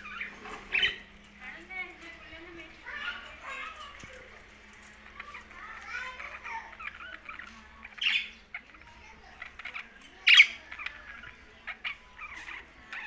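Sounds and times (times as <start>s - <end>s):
budgerigars chirping: 0.0s - 1.8s, 4.8s - 13.0s.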